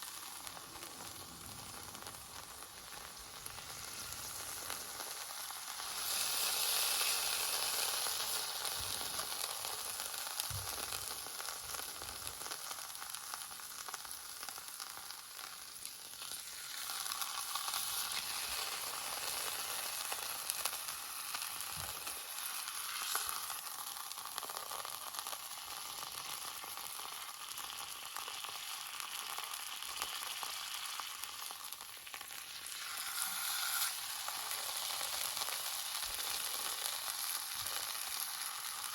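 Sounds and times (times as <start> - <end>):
meat sizzling in a skillet: 0.0 - 38.9.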